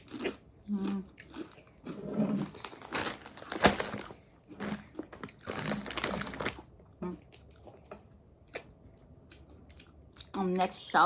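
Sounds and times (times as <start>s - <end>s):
tortilla chips crunching: 0.0s - 6.8s.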